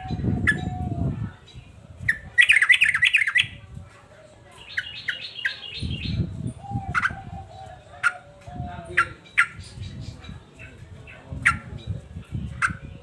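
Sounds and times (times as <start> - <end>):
bulbul chattering call: 2.1 - 3.6.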